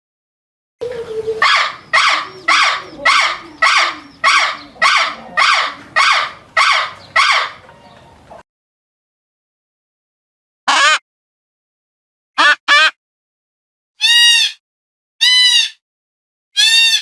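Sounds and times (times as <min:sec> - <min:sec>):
bird harsh call: 0:00.8 - 0:08.2.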